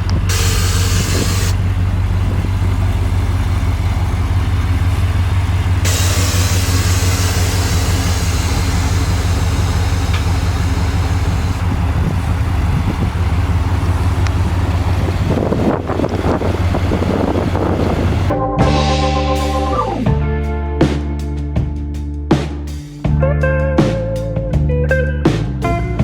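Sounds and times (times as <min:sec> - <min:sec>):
car engine running: 0:00.0 - 0:20.2.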